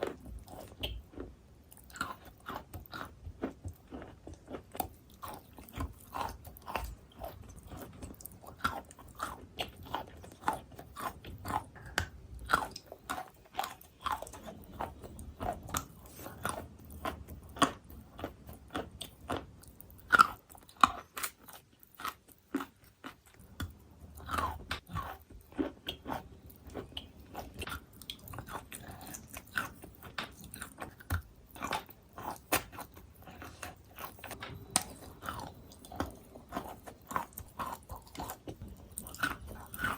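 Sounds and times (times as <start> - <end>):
chewing crunchy chalk: 24.2 - 39.9.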